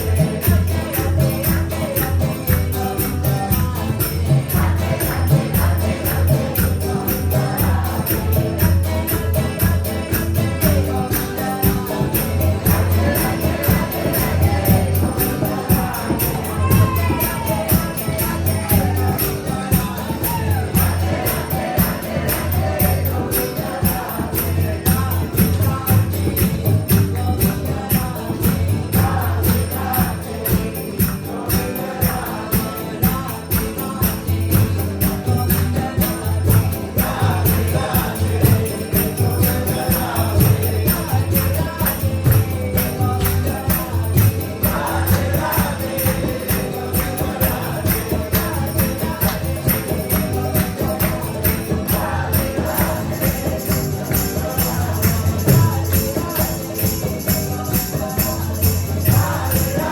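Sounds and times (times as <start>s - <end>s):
fast percussion beat: 0.0s - 59.9s
jingling metallic bells: 0.0s - 59.9s
voices chanting: 0.0s - 59.9s.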